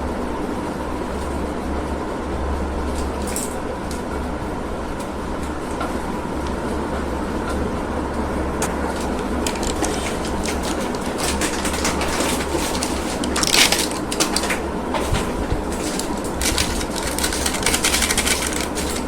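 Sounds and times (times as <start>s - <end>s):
steady low hum: 0.0s - 19.0s
plastic packaging crinkling: 9.0s - 19.0s.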